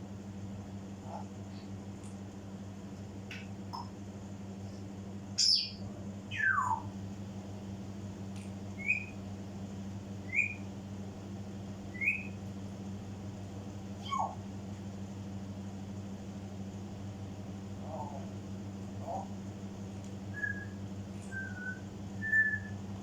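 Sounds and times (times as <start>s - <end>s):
parrot whistling and chirping: 5.4s - 6.9s, 8.8s - 9.1s, 10.3s - 10.6s, 11.9s - 12.4s, 14.0s - 14.4s, 20.3s - 22.8s.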